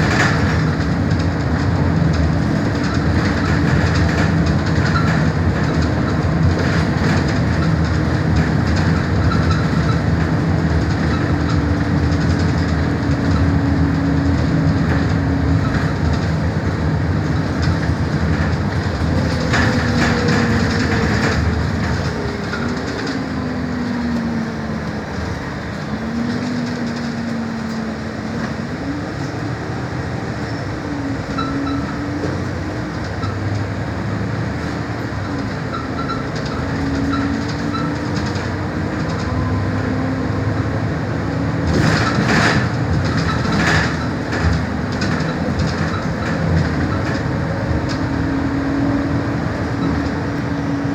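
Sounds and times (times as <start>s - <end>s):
rattles: 0.0s - 24.3s
bus drive rumble: 0.0s - 50.9s
road noise: 0.0s - 50.9s.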